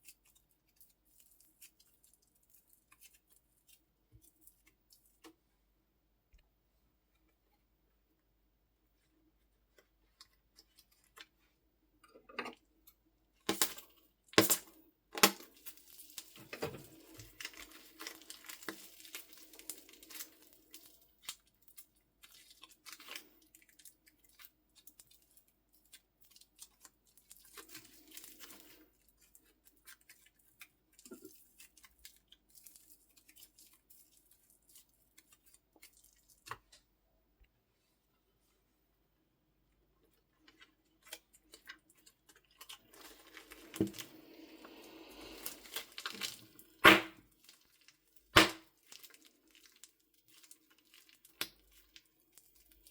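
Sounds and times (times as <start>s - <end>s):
sticky slime crackling: 45.4s - 52.9s
loud sharp slime pops: 46.8s - 47.2s, 48.4s - 48.7s.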